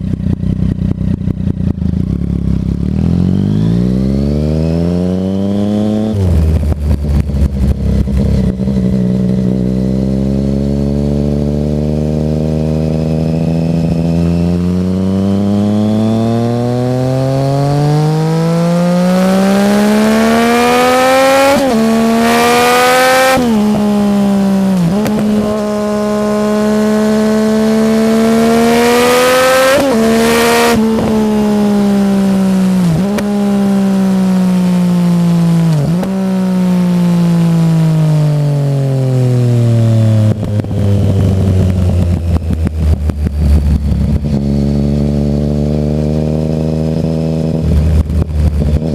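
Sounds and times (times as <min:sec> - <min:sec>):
motorcycle engine revving: 0:00.0 - 0:48.9
exhaust crackling: 0:40.0 - 0:48.9.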